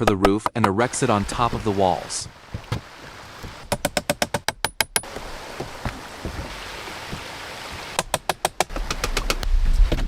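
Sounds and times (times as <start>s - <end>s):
sharp knocks on timber: 2.2s - 7.3s.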